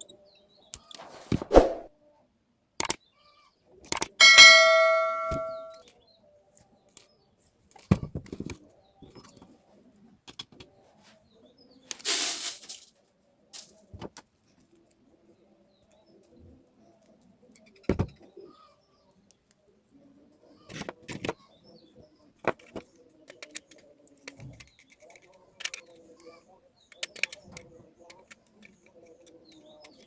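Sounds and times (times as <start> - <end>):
tools clicking and knocking: 3.8 - 5.8, 22.4 - 26.0, 26.9 - 30.0
loud metallic clang: 4.2 - 5.7.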